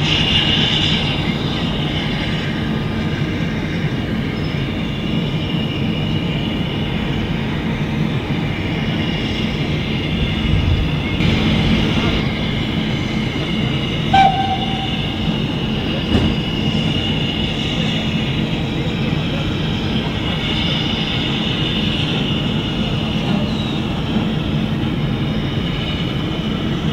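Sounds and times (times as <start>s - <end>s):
train wheels rumbling on rails: 0.0s - 26.9s
brief pitched tone: 14.1s - 15.4s.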